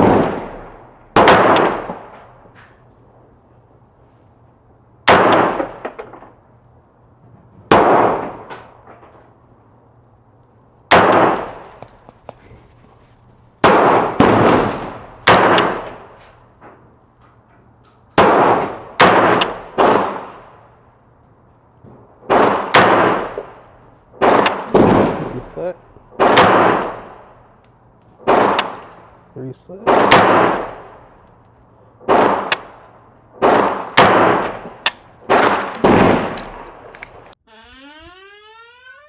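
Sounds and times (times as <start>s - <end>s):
airsoft rifle shots: 0.0s - 2.2s, 5.1s - 6.2s, 10.9s - 11.9s, 13.6s - 16.2s, 18.2s - 20.3s, 22.3s - 23.6s, 24.2s - 25.6s, 26.2s - 27.2s, 28.2s - 29.0s, 29.9s - 30.8s, 33.4s - 37.4s.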